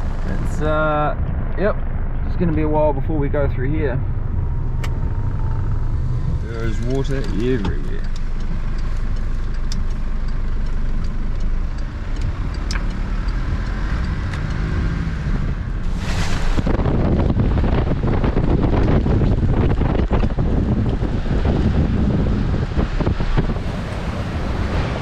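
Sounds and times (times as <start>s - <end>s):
vehicle engine running: 0.0s - 25.0s
wind on microphone: 4.0s - 8.2s, 12.1s - 25.0s
floodwater rushing: 23.5s - 25.0s.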